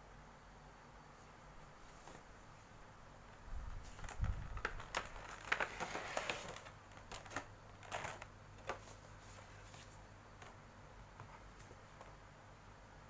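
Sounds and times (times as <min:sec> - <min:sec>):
cardboard and plastic crinkling: 0:03.8 - 0:10.6.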